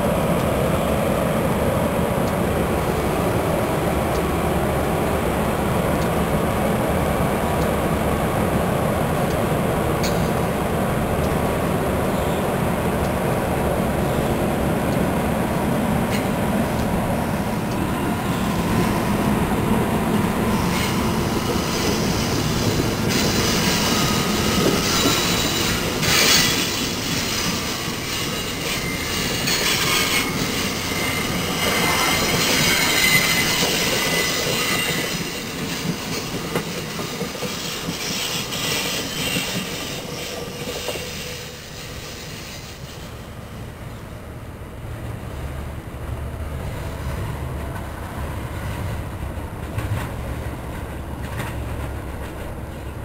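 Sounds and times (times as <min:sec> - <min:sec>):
train wheels clickety-clack: 0:09.1 - 0:11.5, 0:16.0 - 0:43.6, 0:46.7 - 0:53.0
train wheels squealing: 0:20.4 - 0:43.7.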